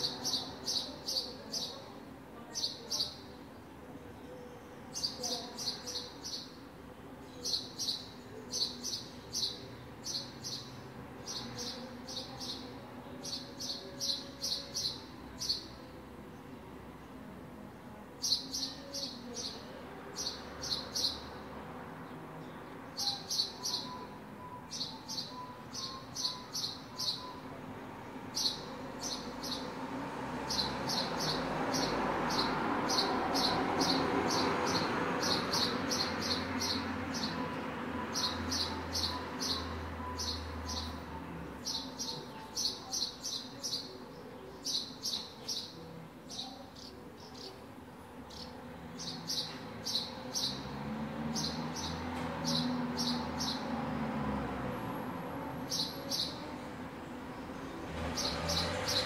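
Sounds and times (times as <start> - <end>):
street noise: 0.0 - 59.0
small birds chirping: 7.2 - 16.5, 22.1 - 27.5, 28.1 - 29.8, 30.4 - 54.1, 55.7 - 56.5
vehicle passing: 27.8 - 41.9, 48.3 - 59.0.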